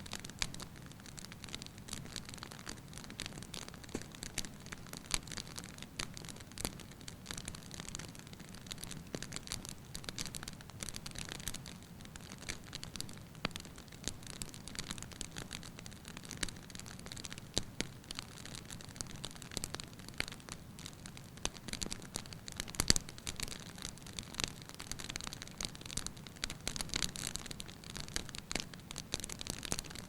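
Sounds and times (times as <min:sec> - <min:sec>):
logs crackling and popping: 0:00.0 - 0:30.0.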